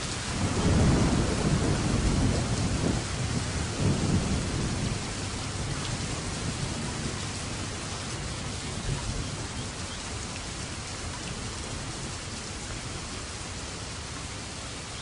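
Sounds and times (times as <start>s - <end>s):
low thunder rumble: 0.0s - 13.2s
heavy rain falling: 0.0s - 15.0s.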